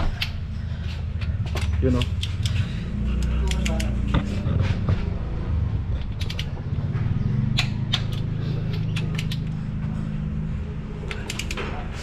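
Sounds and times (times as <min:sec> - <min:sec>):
steady low hum: 0:00.0 - 0:12.0
torque wrench clicking: 0:07.6 - 0:09.5.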